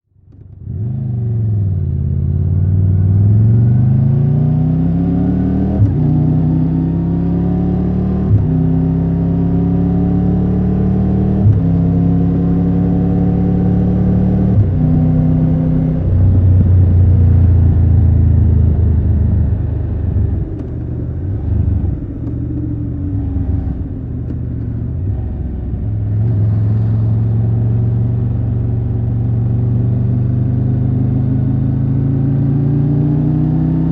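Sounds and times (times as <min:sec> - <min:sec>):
motorcycle engine accelerating: 0:00.4 - 0:33.9.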